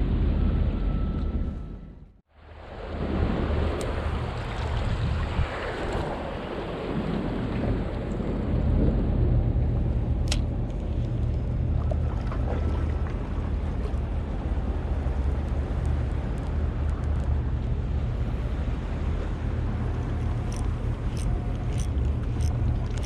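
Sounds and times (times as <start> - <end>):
wind buffeting microphone: 2.6 - 23.0
low rumble: 7.3 - 23.0.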